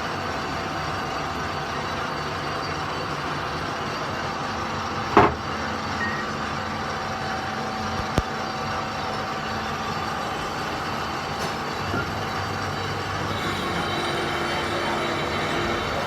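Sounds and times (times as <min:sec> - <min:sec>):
running machinery hum: 0:00.0 - 0:16.0
sharp knock: 0:05.1 - 0:05.4.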